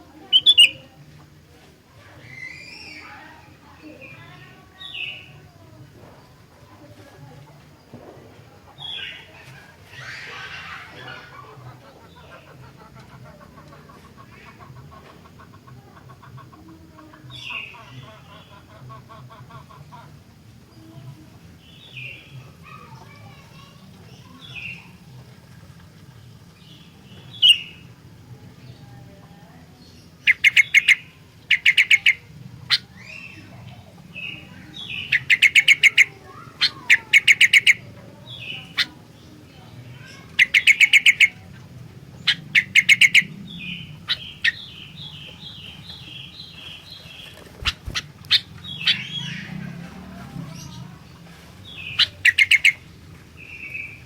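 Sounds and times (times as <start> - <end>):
bird singing sharp notes: 0.3 - 0.8.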